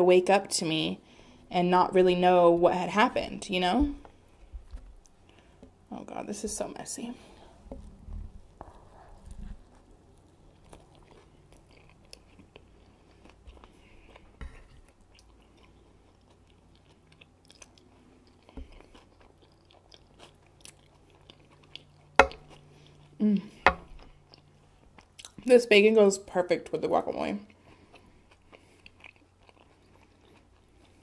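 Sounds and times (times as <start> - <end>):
chewing and mouth sounds: 7.8 - 25.5, 27.4 - 31.0.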